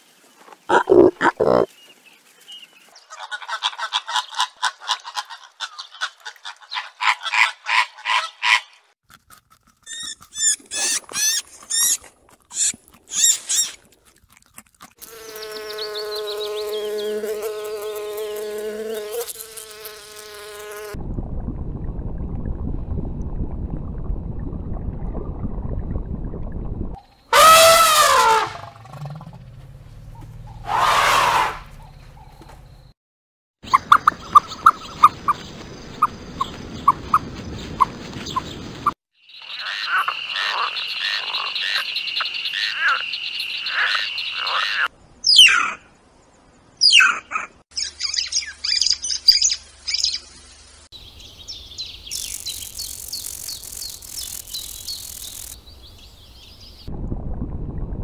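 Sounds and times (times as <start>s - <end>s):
flying insect buzzing: 15.0s - 21.0s, 52.1s - 55.6s
elephant trumpeting: 27.3s - 29.6s, 30.5s - 31.8s
rapid chirping pulses: 52.0s - 55.6s.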